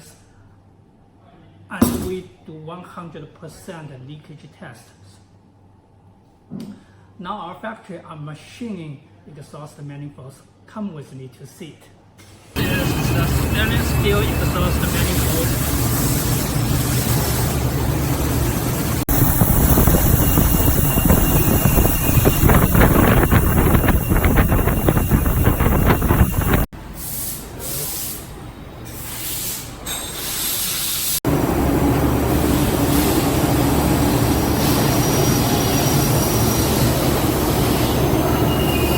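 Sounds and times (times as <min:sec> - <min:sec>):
machine hiss and hum: 0:12.6 - 0:38.9.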